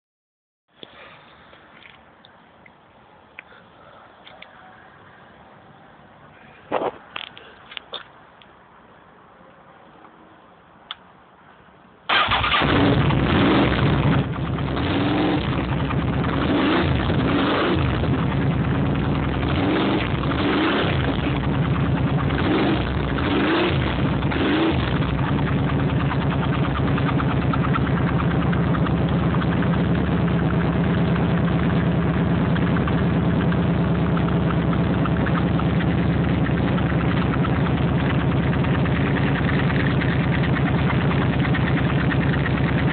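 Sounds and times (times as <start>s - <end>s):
motorcycle engine revving and idling: 12.1s - 42.9s.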